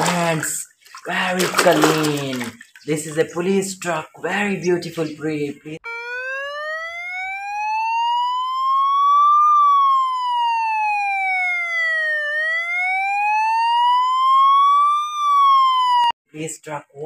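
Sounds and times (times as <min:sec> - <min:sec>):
police siren wailing: 0:05.8 - 0:16.2.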